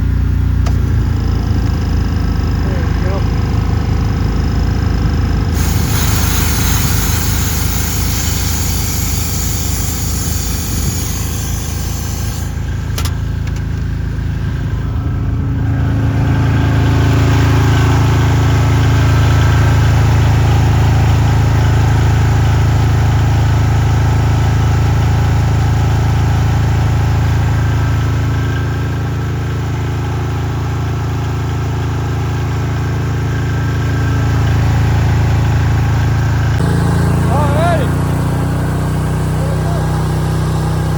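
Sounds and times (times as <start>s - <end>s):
engine-driven welder running: 0.0s - 40.9s
sharp click: 12.9s - 13.9s.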